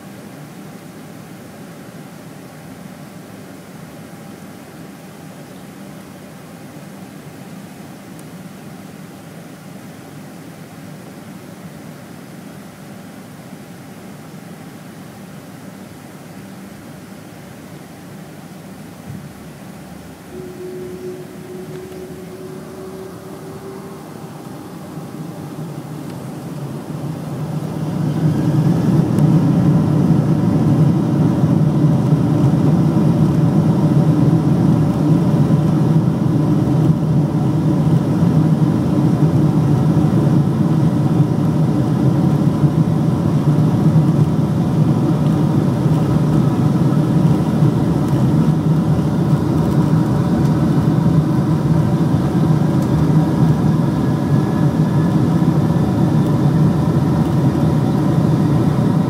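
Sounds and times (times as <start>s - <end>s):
jet engines roaring: 19.2s - 59.0s.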